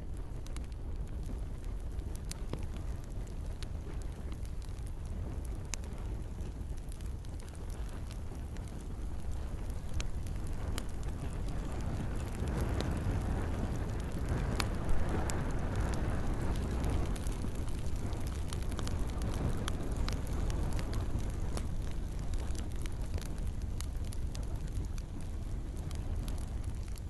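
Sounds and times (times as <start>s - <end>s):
campfire crackling: 0.0s - 27.0s
rain: 0.0s - 27.0s.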